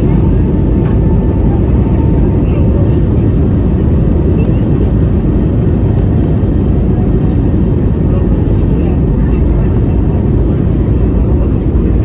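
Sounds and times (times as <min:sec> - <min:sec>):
jet engines roaring in cabin: 0:00.0 - 0:12.0.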